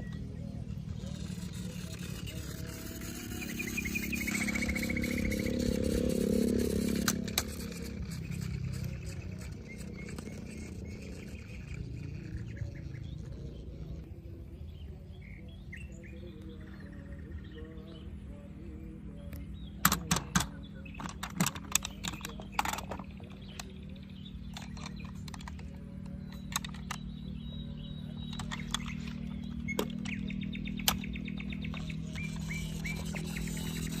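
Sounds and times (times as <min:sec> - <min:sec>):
steady low hum: 0:00.0 - 0:34.0
plastic toys clicking and clattering: 0:01.0 - 0:12.8, 0:19.8 - 0:23.8, 0:24.5 - 0:27.1, 0:28.2 - 0:30.2, 0:30.8 - 0:34.0.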